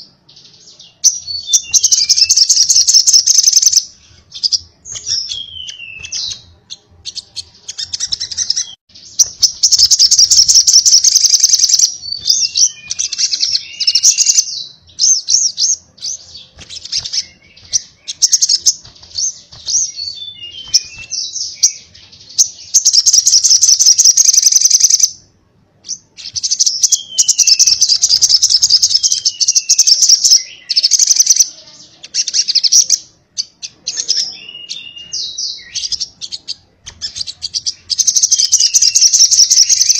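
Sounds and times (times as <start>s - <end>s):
bird fast rattling trills: 7.7s - 14.4s.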